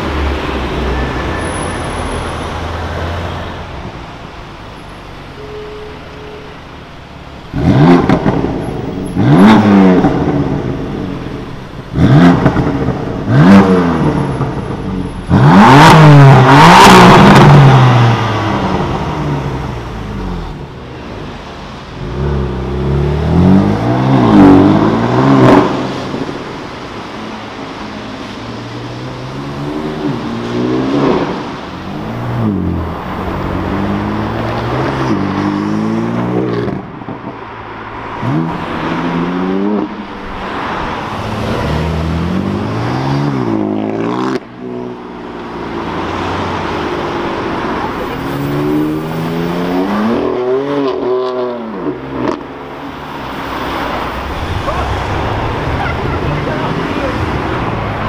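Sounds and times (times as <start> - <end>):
car engines accelerating: 0.0 - 5.4, 6.5 - 58.0.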